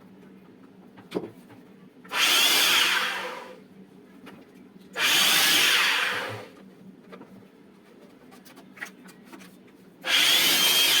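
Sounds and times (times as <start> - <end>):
electric blower whining: 2.1 - 3.6, 5.0 - 6.6, 10.0 - 11.0.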